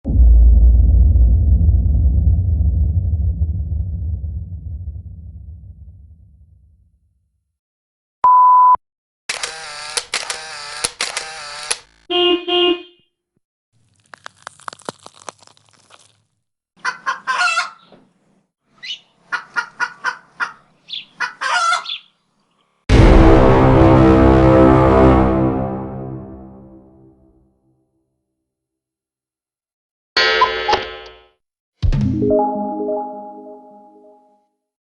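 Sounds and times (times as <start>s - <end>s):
censor bleep: 8.2s - 8.8s
bird clucking and squawking: 16.8s - 18.0s, 18.8s - 22.1s
brief honk: 22.9s - 26.6s.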